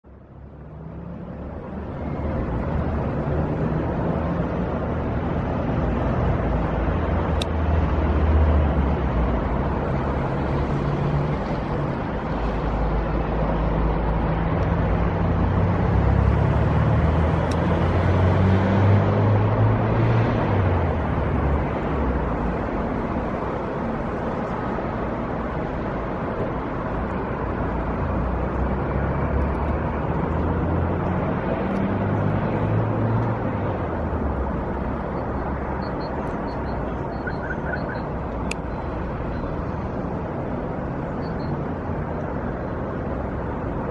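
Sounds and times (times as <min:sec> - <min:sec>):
sharp clicks: 0:35.9 - 0:38.7.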